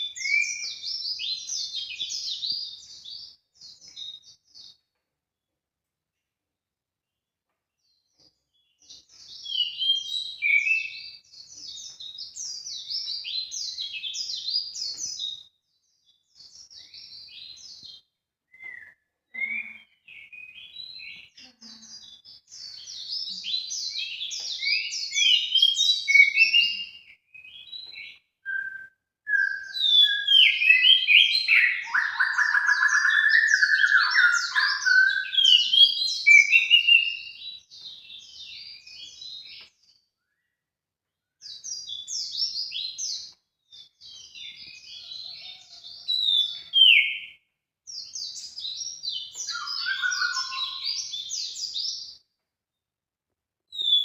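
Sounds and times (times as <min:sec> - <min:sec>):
high bird chirping and twittering: 0:00.0 - 0:04.9, 0:07.8 - 0:40.5, 0:41.4 - 0:52.2, 0:53.7 - 0:54.0
lower fuller bird call: 0:22.0 - 0:37.4, 0:43.7 - 0:47.4, 0:48.5 - 0:51.9.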